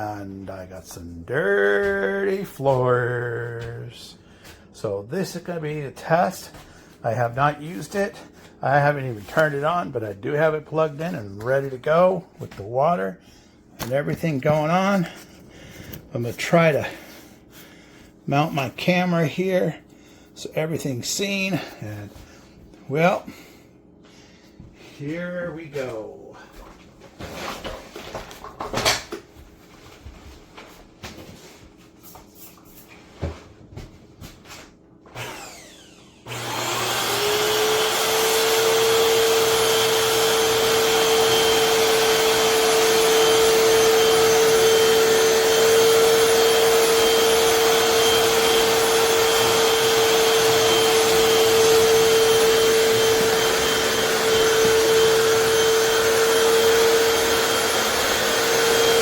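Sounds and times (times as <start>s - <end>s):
floor cleaner motor whine: 35.0s - 59.0s.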